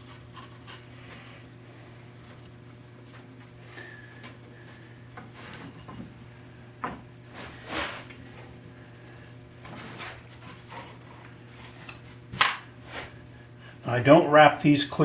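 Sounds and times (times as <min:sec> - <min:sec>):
steady low hum: 0:00.0 - 0:15.0
scraping rustle: 0:07.3 - 0:08.6, 0:09.6 - 0:12.2.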